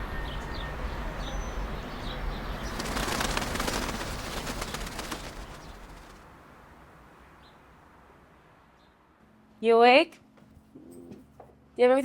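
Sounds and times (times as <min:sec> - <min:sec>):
birds chirping: 0:00.0 - 0:06.2
low outdoor rumble: 0:00.0 - 0:06.5
crackly rush of noise: 0:00.7 - 0:07.2.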